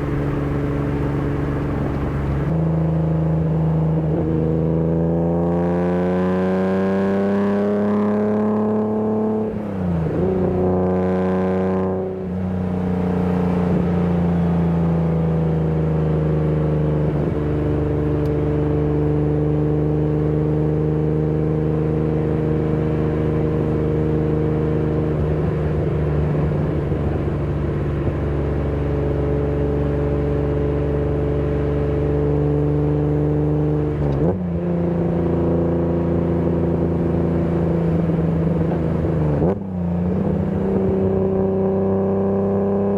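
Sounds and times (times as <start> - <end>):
car engine accelerating: 0.0 - 2.6.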